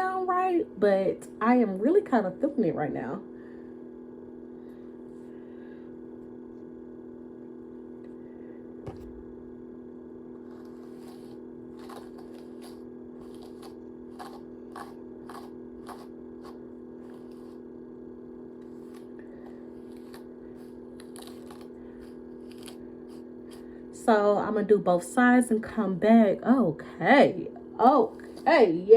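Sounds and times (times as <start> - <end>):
low electrical hum: 0.0 - 28.9
hair being handled: 10.4 - 17.8, 18.6 - 23.9.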